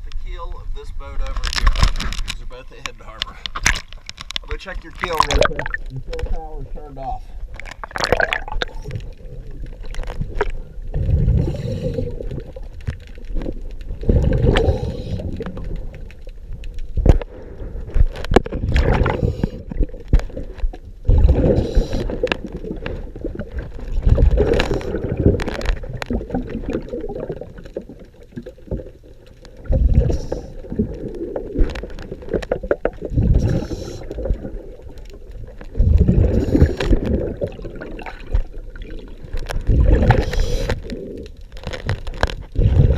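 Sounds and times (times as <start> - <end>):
exhaust bubbles gurgling: 4.5 - 41.4, 42.4 - 42.9
diver breathing through regulator: 11.0 - 12.3, 14.4 - 15.4, 21.3 - 22.3, 33.2 - 34.2, 35.8 - 37.0, 39.8 - 41.2.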